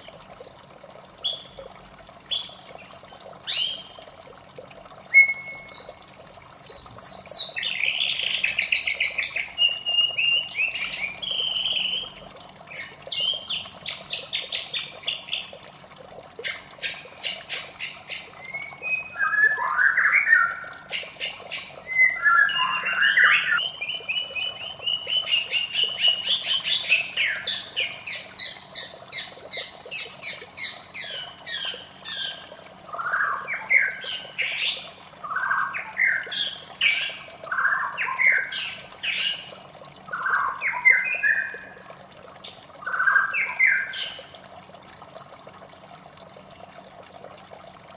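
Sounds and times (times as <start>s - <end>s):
bird singing whistles and trills: 5.1s - 6.0s, 6.6s - 12.2s, 18.4s - 20.7s, 21.8s - 28.8s, 40.1s - 41.7s, 42.8s - 44.2s.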